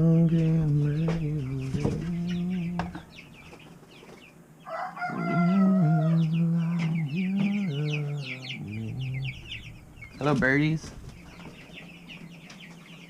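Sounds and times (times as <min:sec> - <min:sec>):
chicks peeping: 0:00.0 - 0:13.0
rooster crowing: 0:04.6 - 0:06.8.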